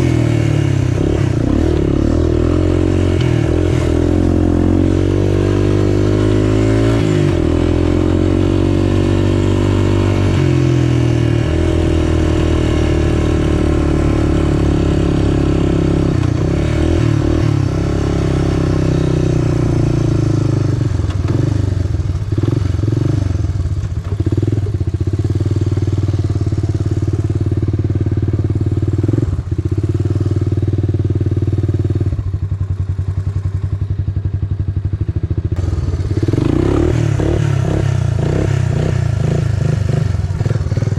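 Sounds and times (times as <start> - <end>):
off-road vehicle engine running: 0.0 - 40.9
clatter: 23.6 - 25.0.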